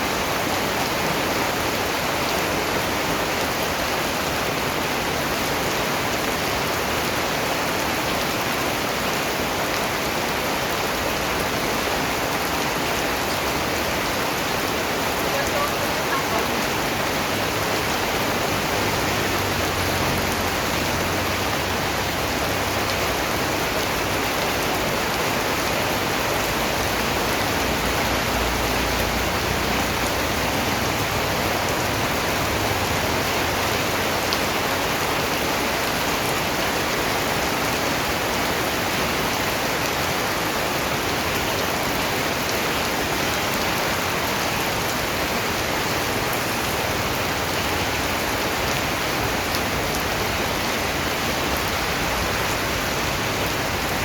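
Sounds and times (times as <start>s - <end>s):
steady rain hissing: 0.0s - 54.0s.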